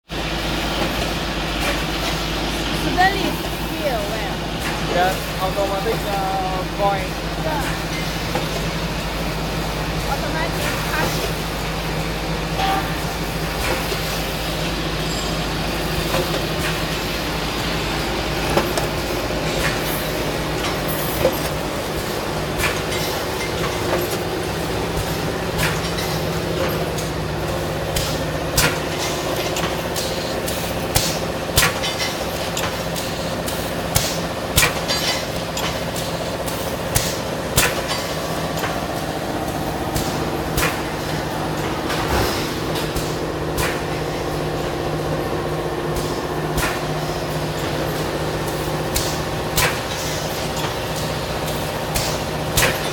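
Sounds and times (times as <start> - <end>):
welding machine hum: 0.1 - 52.9
machine clicks and knocks: 15.3 - 52.9.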